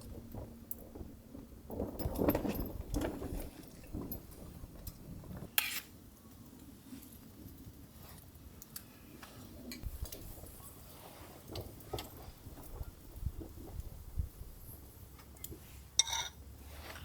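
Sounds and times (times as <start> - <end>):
cooking gear knocks and rustling: 1.7 - 5.5.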